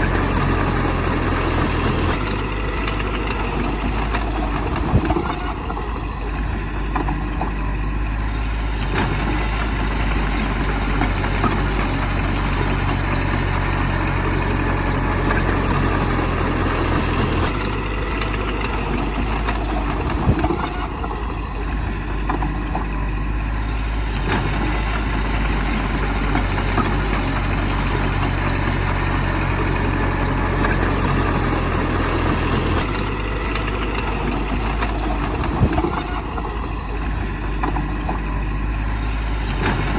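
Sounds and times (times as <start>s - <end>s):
bulldozer diesel engine: 0.0s - 39.9s.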